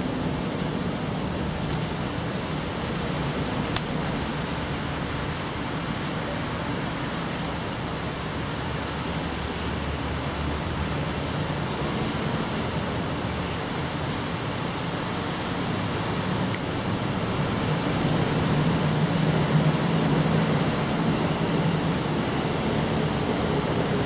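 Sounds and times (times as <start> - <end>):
steady rain: 0.0 - 24.0
sharp drip ticks: 16.4 - 17.2.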